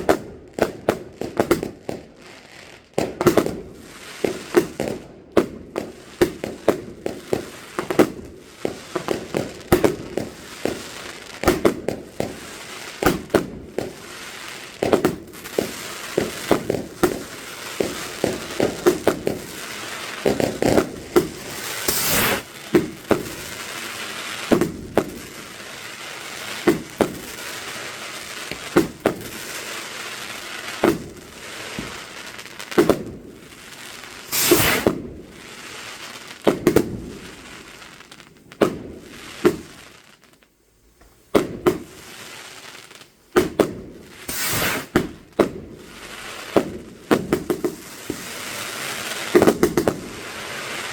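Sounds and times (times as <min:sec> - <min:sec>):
fireworks bangs and crackles: 0:00.0 - 0:50.9
loud hiss: 0:17.2 - 0:32.8, 0:33.4 - 0:36.4, 0:44.1 - 0:45.0.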